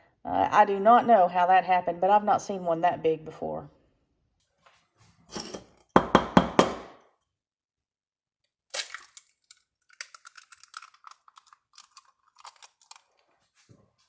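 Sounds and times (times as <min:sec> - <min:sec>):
eggshell knocking on hard edge: 0:06.0 - 0:06.9
eggshell crackling: 0:08.7 - 0:13.6.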